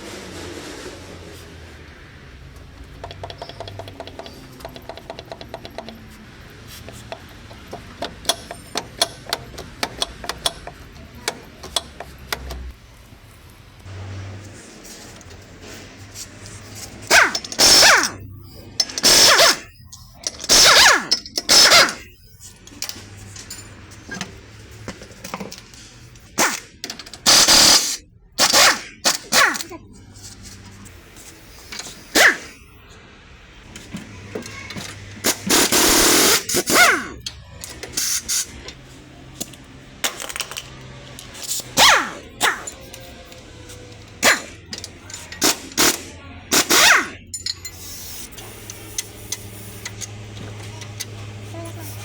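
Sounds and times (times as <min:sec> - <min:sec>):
car fault noise bursts: 0:13.9 - 0:18.3, 0:26.1 - 0:39.2.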